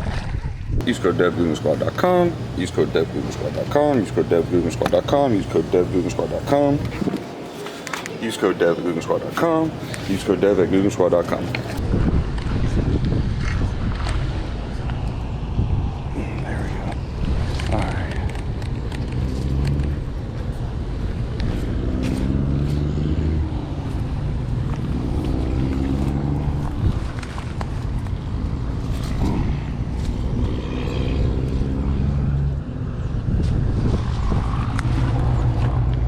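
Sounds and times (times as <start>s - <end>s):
car engine and road noise: 0.0s - 36.0s.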